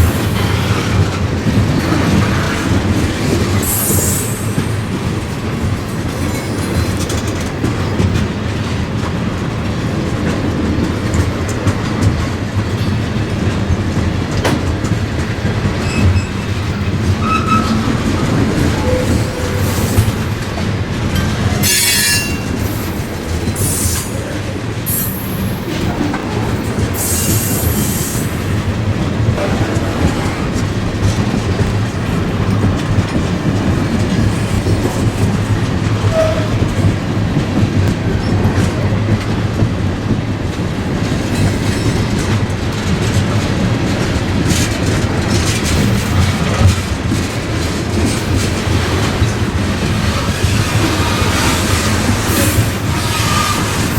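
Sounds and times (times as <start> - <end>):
freight train rumbling: 0.0 - 53.9
train wheels squealing: 3.6 - 4.8, 6.2 - 7.0, 15.8 - 20.3, 21.6 - 24.2, 27.0 - 28.4, 36.0 - 36.7, 50.1 - 53.9.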